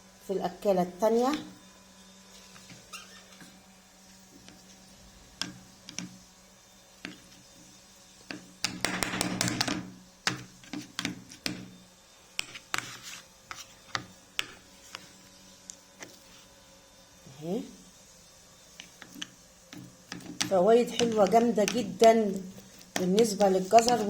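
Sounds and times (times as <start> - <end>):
spoon tapping and scraping dish: 18.8 - 22.2, 22.8 - 24.0.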